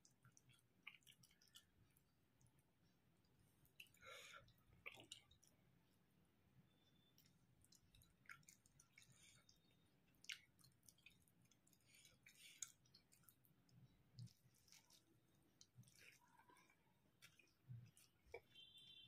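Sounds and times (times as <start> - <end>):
faint chewing: 0.0 - 5.7, 6.7 - 18.7
wet mouth clicks and smacks: 10.2 - 13.4.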